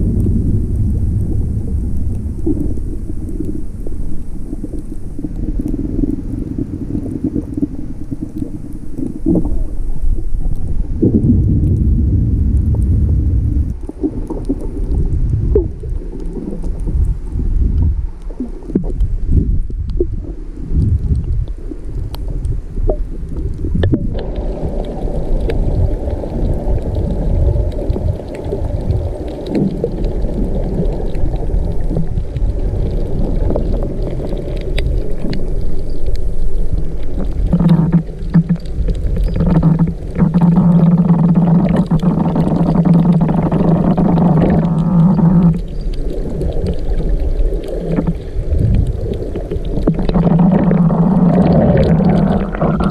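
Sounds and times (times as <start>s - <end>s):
underwater water movement: 0.0s - 52.9s
scattered clicks: 37.2s - 52.9s.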